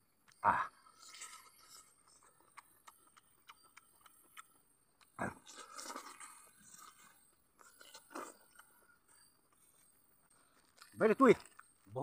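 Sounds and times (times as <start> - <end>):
man chewing food: 0.0 - 11.9
wet mouth clicks: 0.9 - 8.7.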